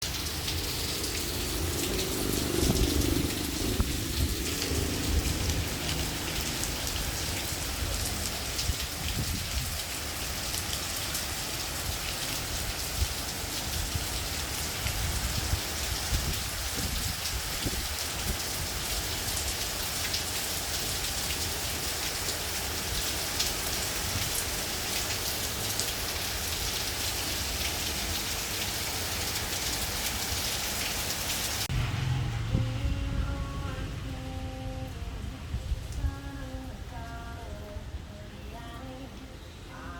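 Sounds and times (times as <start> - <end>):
light rain falling: 0.0 - 39.9
wind gusting on microphone: 0.8 - 10.0, 12.5 - 19.1, 31.5 - 34.2, 34.9 - 36.4.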